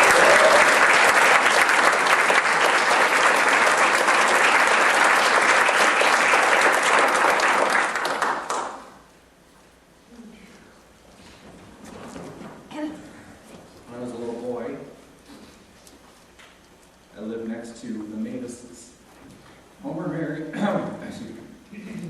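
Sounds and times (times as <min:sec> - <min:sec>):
congregation applauding: 0:00.0 - 0:09.1.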